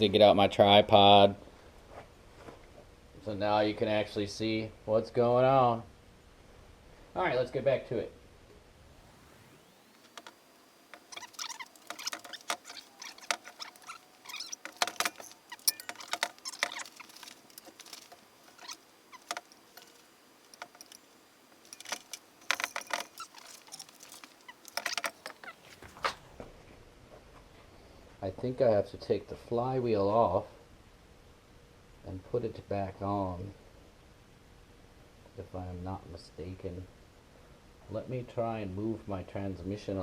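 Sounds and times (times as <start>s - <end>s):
tools clinking on engine metal: 10.1s - 25.7s.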